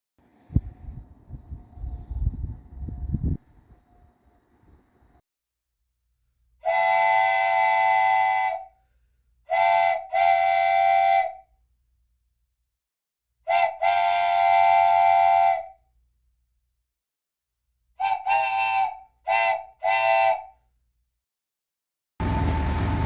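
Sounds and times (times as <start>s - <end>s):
train horn blasts: 6.7s - 8.6s, 22.2s - 23.0s.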